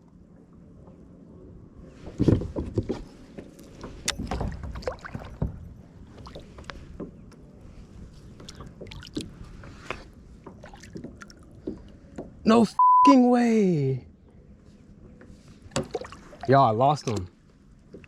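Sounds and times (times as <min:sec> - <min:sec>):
faint water noise: 0:03.2 - 0:12.7, 0:15.0 - 0:18.0
knocks and bumps in kayak: 0:03.9 - 0:05.8.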